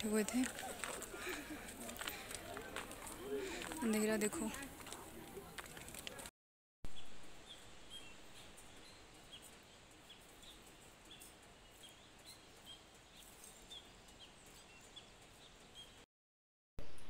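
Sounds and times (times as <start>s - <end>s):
small birds chirping: 6.9s - 16.1s.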